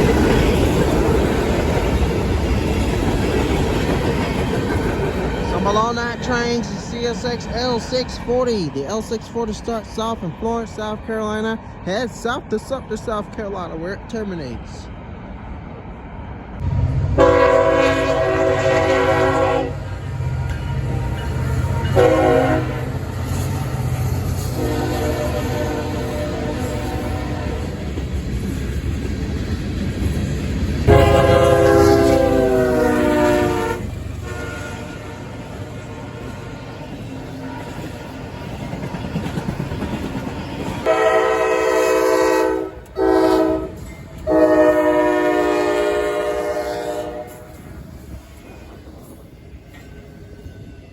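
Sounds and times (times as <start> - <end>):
freight train rumbling: 0.0 - 50.9
locomotive horn blasts: 17.2 - 19.9, 20.6 - 23.0, 24.6 - 27.8, 30.9 - 36.5, 40.8 - 47.5.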